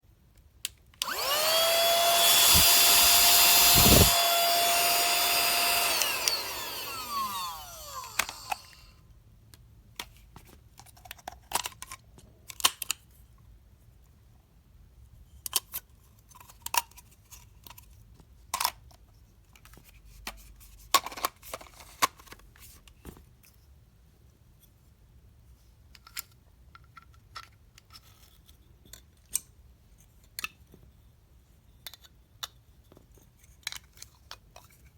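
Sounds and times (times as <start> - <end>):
handheld vacuum motor whine: 1.0 - 9.0.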